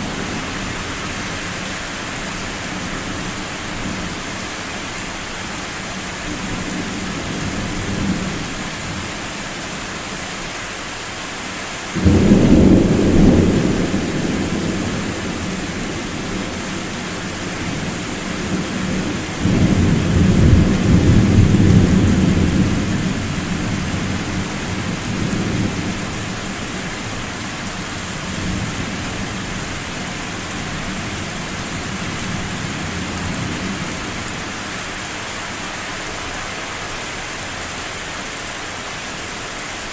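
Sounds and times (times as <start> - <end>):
steady rain: 0.0 - 39.9
thunder rolling: 12.0 - 26.3.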